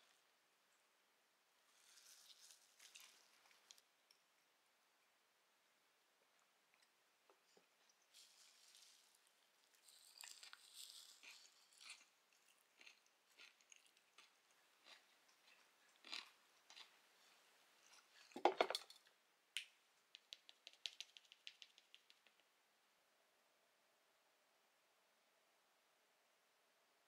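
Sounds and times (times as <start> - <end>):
crunchy food chewing: 1.7 - 3.8, 6.8 - 18.4.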